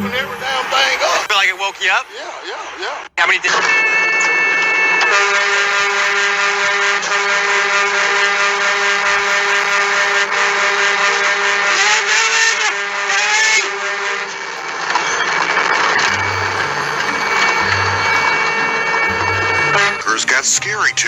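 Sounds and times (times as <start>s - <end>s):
vehicle engine at high revs: 10.2s - 14.8s.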